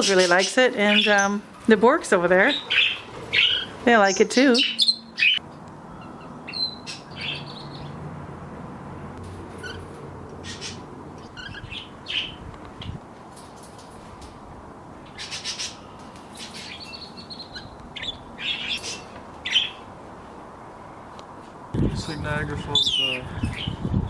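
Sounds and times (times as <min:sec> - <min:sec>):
parrots chirping: 0:00.0 - 0:01.4, 0:02.5 - 0:08.0, 0:09.5 - 0:13.0, 0:15.0 - 0:19.9.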